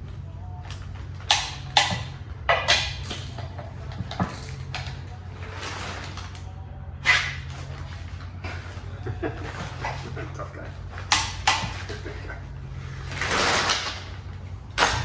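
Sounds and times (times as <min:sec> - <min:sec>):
steady low hum: 0:00.0 - 0:15.0
torque wrench clicks and clanks: 0:00.7 - 0:05.0, 0:11.0 - 0:11.9, 0:14.8 - 0:15.0.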